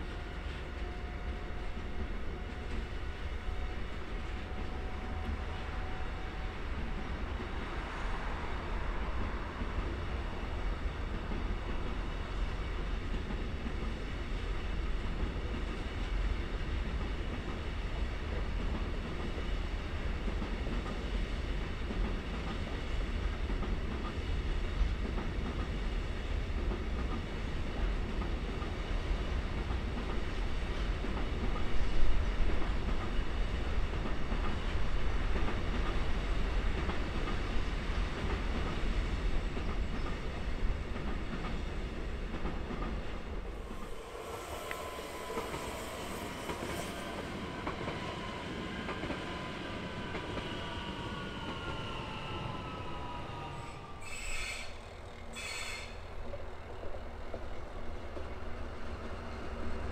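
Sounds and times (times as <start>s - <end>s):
train rumbling past: 0.0s - 59.9s
high hiss: 43.5s - 48.2s, 53.0s - 56.1s.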